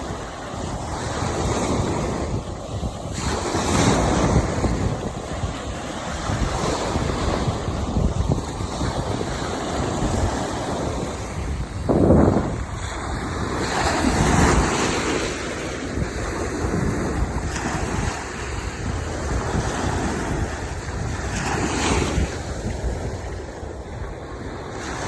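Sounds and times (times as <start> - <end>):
sea surf breaking: 0.0 - 25.0
wind buffeting microphone: 0.0 - 25.0.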